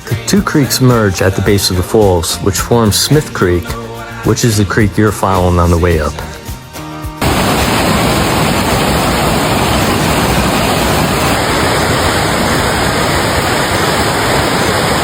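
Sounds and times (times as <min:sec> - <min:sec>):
waterfalls rushing: 0:07.2 - 0:15.0.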